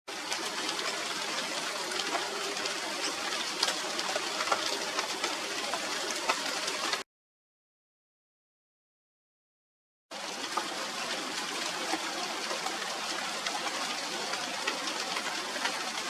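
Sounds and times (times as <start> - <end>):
rain falling through leaves: 0.1 - 7.0, 10.1 - 16.0.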